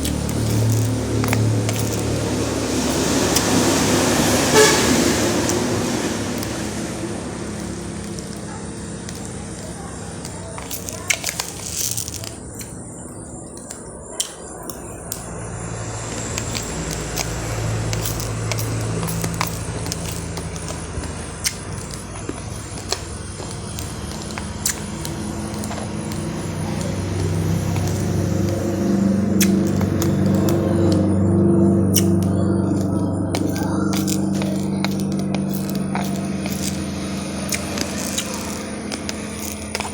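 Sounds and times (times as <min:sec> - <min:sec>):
music with low tones: 0:00.0 - 0:39.9
rice grains crunching: 0:00.0 - 0:39.9
steady background noise: 0:00.0 - 0:39.9.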